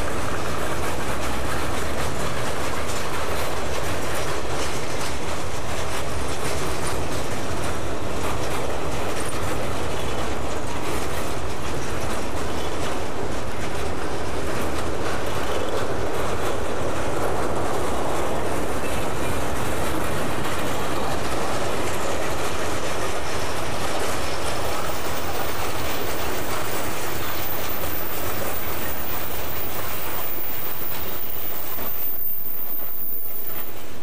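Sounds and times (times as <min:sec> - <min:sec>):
freight car wheels clattering on rails: 0:00.0 - 0:34.0.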